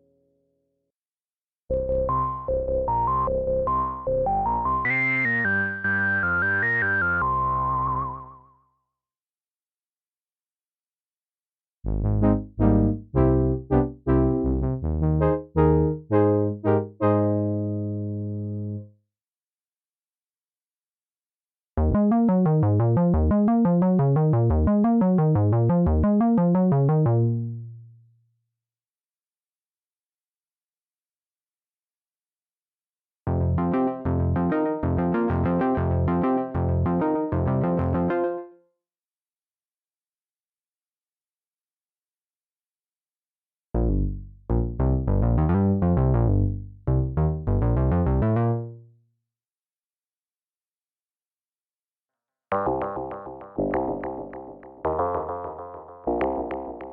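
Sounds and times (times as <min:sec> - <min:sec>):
bass synth notes: 0:01.7 - 0:08.2, 0:11.9 - 0:18.9, 0:21.8 - 0:28.0, 0:33.3 - 0:38.2, 0:43.8 - 0:48.9, 0:52.5 - 0:56.9.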